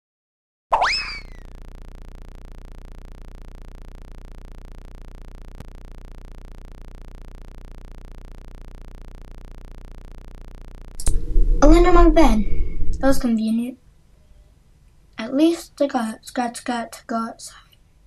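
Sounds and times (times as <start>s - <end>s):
cartoon pitched sweep: 0.7s - 1.4s, 11.0s - 13.4s
low pulsing buzzing hum: 1.2s - 14.0s.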